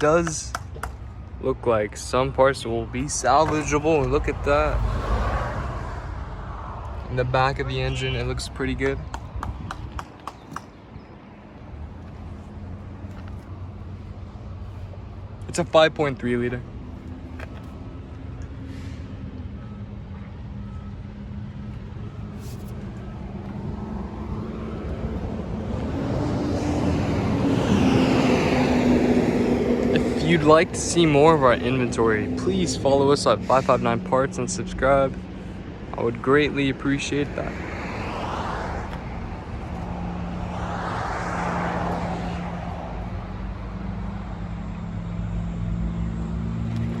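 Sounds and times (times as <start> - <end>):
vehicle engine humming: 0.0 - 47.0.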